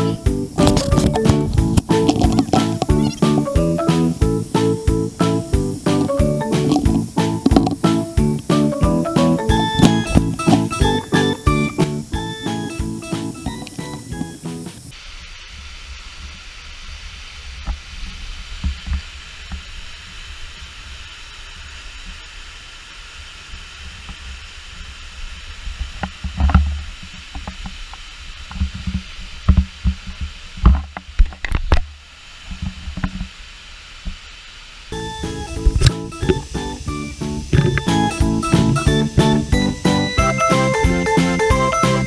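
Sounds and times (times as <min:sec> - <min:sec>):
low thumps: 0:00.0 - 0:14.8, 0:35.0 - 0:42.0
sharp knocks: 0:35.2 - 0:40.6.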